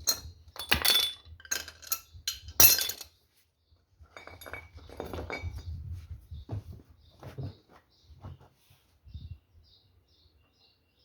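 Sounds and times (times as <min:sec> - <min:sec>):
metal tools clinking and clattering: 0:00.0 - 0:03.2, 0:04.1 - 0:05.8.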